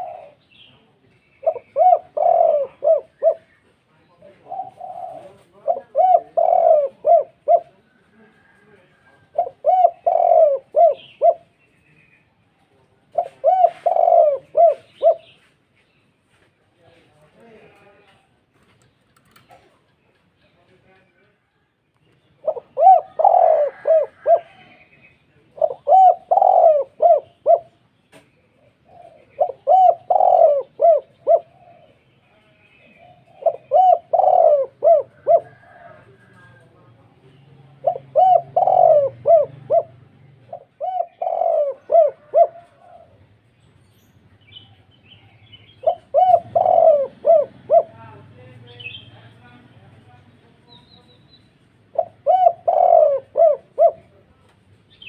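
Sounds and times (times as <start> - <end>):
dove cooing: 0.0 - 11.6, 13.0 - 15.5, 22.4 - 32.1, 32.8 - 43.5, 44.7 - 48.3, 51.8 - 54.3.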